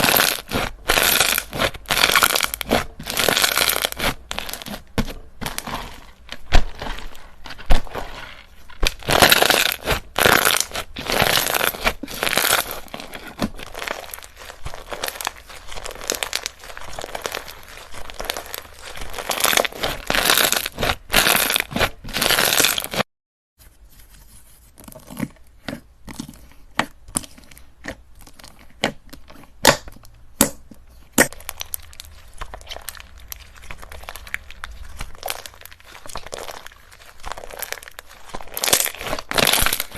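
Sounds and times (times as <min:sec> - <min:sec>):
slime squishing and crackling: 0:00.0 - 0:23.0, 0:24.6 - 0:30.4, 0:31.1 - 0:39.9.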